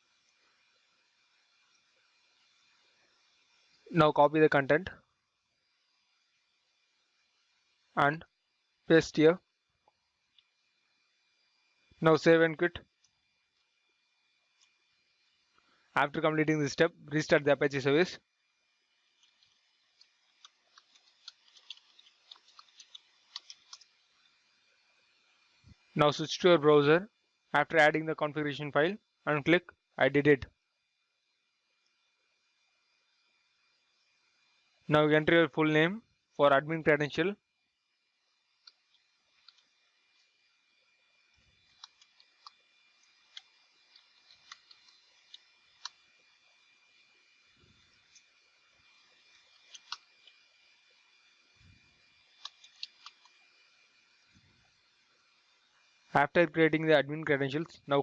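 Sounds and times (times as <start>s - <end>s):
faint steady hiss: 0.0s - 58.0s
small sharp clicks: 19.2s - 24.0s, 41.6s - 46.1s, 49.3s - 50.5s, 52.3s - 53.4s
computer keyboard typing: 20.4s - 23.9s, 49.7s - 50.0s.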